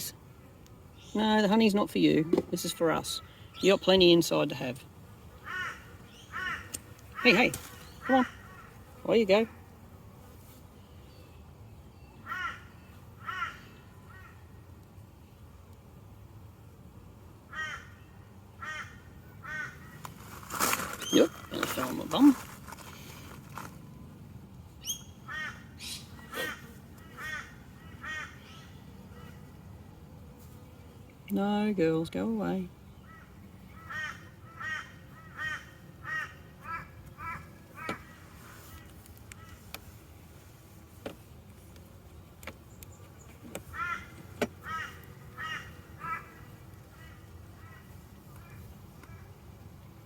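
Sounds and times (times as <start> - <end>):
crow cawing: 5.4 - 7.4, 8.0 - 8.8, 12.2 - 14.4, 17.5 - 18.0, 18.6 - 20.0, 25.3 - 25.7, 26.4 - 28.6, 33.0 - 38.2, 43.7 - 48.6.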